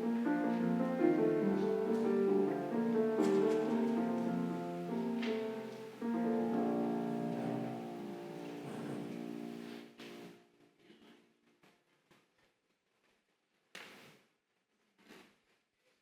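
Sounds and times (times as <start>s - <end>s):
slow piano chords: 0.0s - 10.4s.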